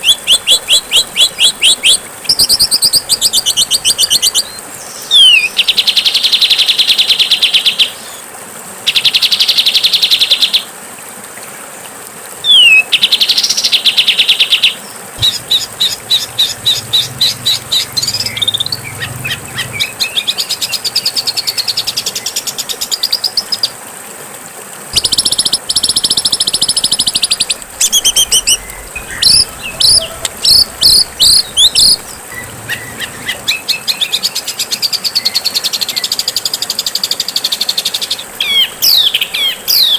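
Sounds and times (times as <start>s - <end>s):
songbird buzzy trills and chips: 24.9s - 33.6s.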